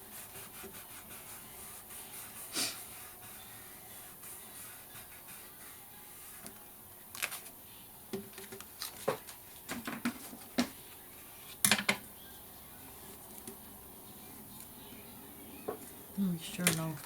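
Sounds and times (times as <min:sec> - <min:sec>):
paper handling: 0:07.1 - 0:07.5.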